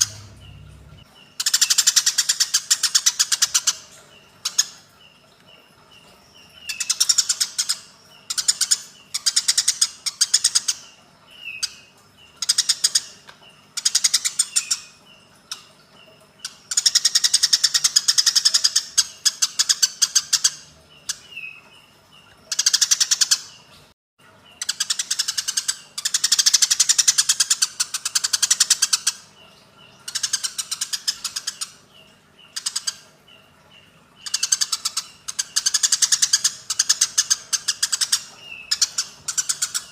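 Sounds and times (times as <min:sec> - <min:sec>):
sparrows harsh chattering chirps: 0:00.0 - 0:23.7, 0:24.4 - 0:39.9.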